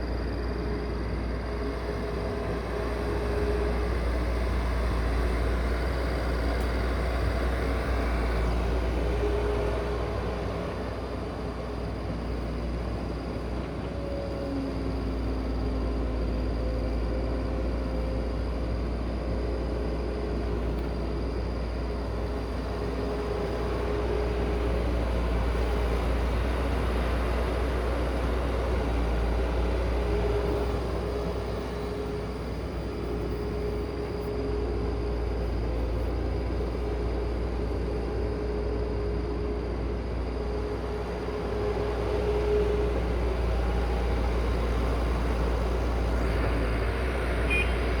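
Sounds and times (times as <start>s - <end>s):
heavy machine engine rumble: 0.0s - 48.0s.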